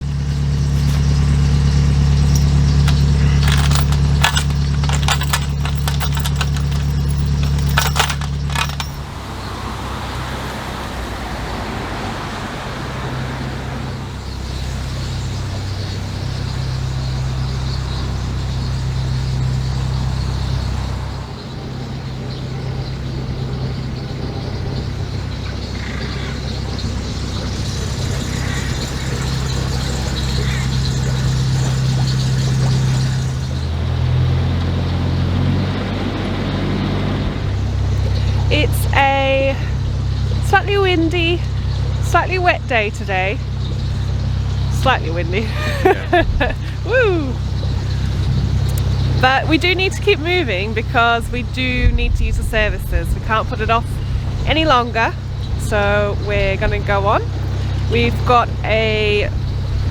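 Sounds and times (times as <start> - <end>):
clicking and rattling: 0.0 - 9.2, 22.2 - 35.0, 47.6 - 51.0
boat engine running: 0.0 - 59.9.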